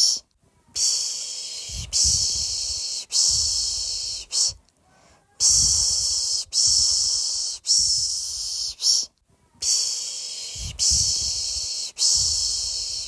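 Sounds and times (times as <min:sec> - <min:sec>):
person shushing: 0:00.0 - 0:13.0.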